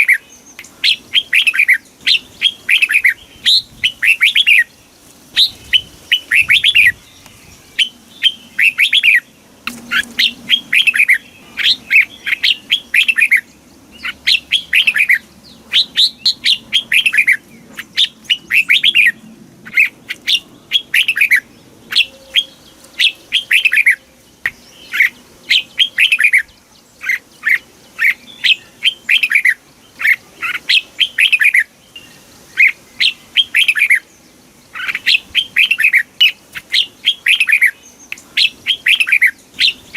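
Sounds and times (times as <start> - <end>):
bird singing whistled phrases: 5.4 - 7.0, 7.8 - 9.3, 9.9 - 26.5, 27.1 - 34.0, 34.8 - 39.9.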